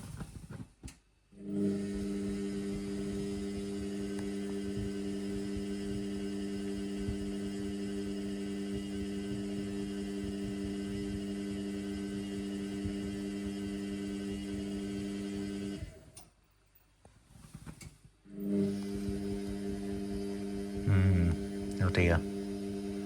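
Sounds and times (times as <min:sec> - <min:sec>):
washing machine humming: 0:01.4 - 0:16.0.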